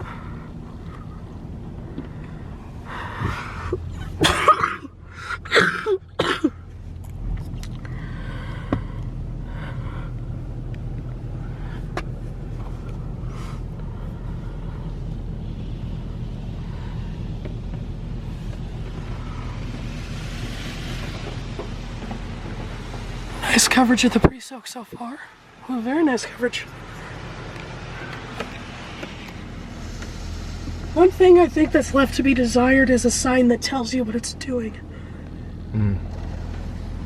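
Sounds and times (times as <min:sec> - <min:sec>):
car engine idling: 0:00.0 - 0:37.0
low hum of wash machinery: 0:00.0 - 0:37.0
water spray hissing on car: 0:18.2 - 0:24.1, 0:26.9 - 0:32.2.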